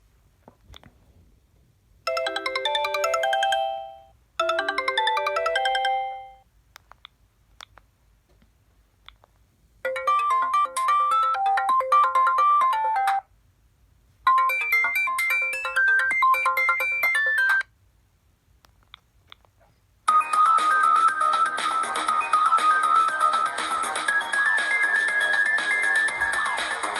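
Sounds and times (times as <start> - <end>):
higher-pitched ringtone melody: 2.1 - 6.4, 9.9 - 13.3, 14.3 - 17.7, 20.1 - 26.9
phone ringtone melody: 2.1 - 6.4, 9.9 - 13.3, 14.3 - 17.7, 20.1 - 26.9.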